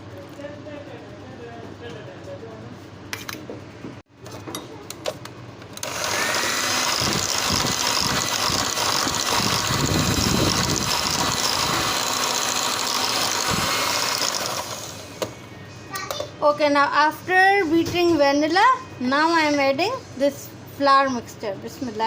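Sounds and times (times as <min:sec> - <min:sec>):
electric mixer beating batter: 0:05.8 - 0:15.3.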